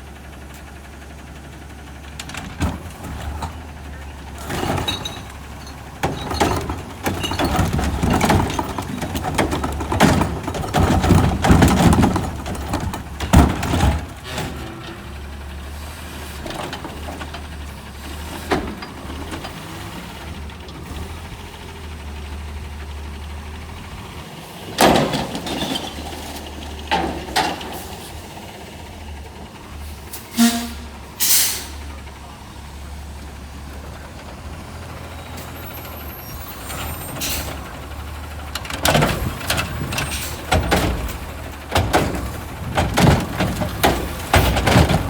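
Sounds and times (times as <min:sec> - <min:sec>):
garbage truck engine running: 0:00.0 - 0:45.0
cart banging and clattering: 0:00.6 - 0:45.0.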